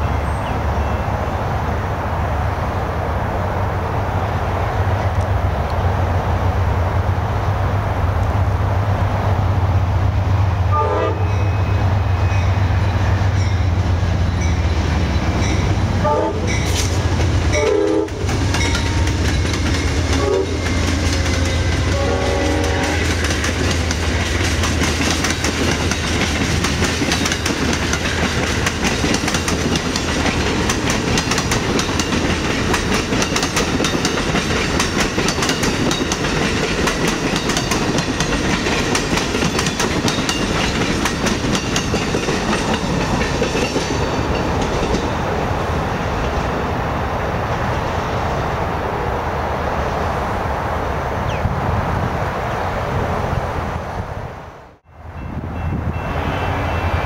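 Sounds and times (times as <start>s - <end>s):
diesel locomotives droning: 0.0s - 57.0s
train horn blasts: 10.7s - 12.4s, 16.0s - 16.8s, 17.5s - 19.1s, 20.0s - 23.2s
wheels clacking over rail joints: 12.3s - 46.6s.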